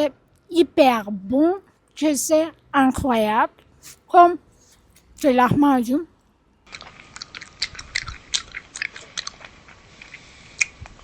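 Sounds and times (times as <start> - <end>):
person chewing crunchy flatbread: 6.6 - 11.0.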